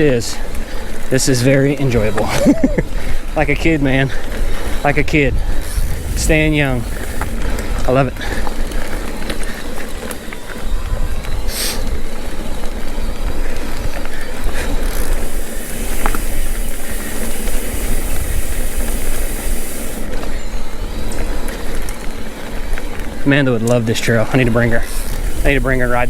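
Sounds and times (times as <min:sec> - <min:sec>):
wind and tyre noise: 0:00.0 - 0:26.0
bright hiss: 0:05.6 - 0:08.2, 0:15.2 - 0:20.1, 0:24.4 - 0:26.0.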